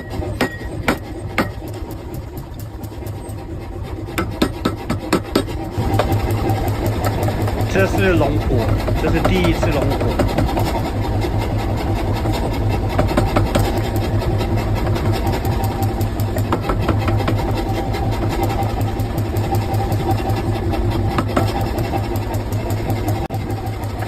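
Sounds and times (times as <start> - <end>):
low forge machine hum: 0.0 - 24.0.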